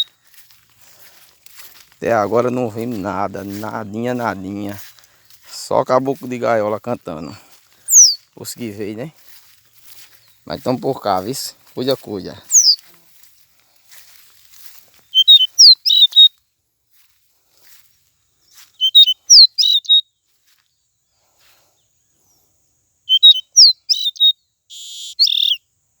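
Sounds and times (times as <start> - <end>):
bird whistled song: 7.8 - 8.3, 12.5 - 12.8, 15.0 - 16.3, 18.7 - 20.1, 23.1 - 25.7.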